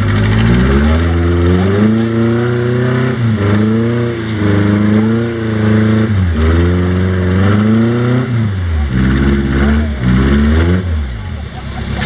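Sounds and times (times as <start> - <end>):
engine revving hard: 0.0 - 12.0.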